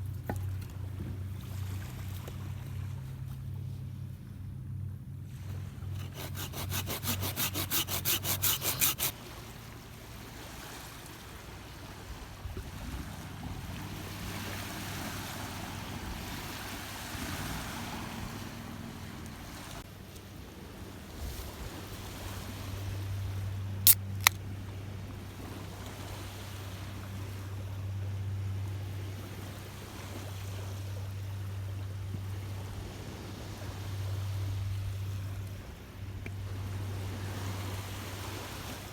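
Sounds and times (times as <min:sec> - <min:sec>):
rasping strokes: 0:05.9 - 0:09.2, 0:23.9 - 0:24.4.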